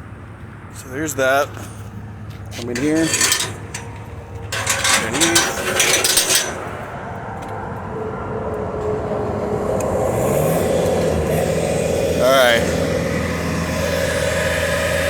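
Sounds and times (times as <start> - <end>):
metallic clattering and clicking: 2.5 - 6.8
lift motor running: 2.7 - 6.7.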